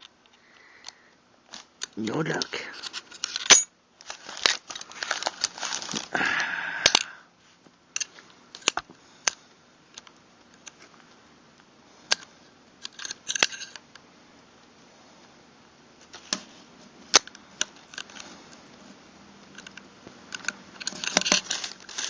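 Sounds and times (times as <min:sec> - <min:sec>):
gun parts clicking and scraping: 0:00.0 - 0:06.1, 0:08.0 - 0:11.0, 0:12.1 - 0:13.9, 0:17.2 - 0:18.6, 0:19.5 - 0:22.0.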